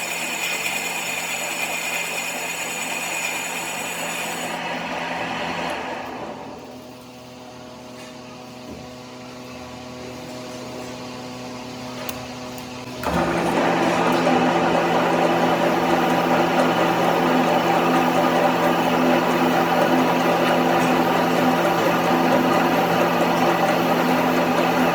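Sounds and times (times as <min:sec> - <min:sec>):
machine running loudly: 0:00.0 - 0:07.1, 0:12.9 - 0:24.9.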